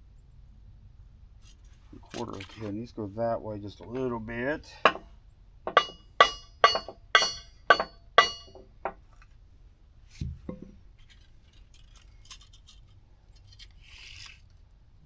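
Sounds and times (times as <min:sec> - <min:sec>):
hammer striking steel wedge: 0:04.8 - 0:05.1, 0:05.7 - 0:08.7
dull knock: 0:05.7 - 0:06.0
faint metal scraping: 0:10.1 - 0:14.8.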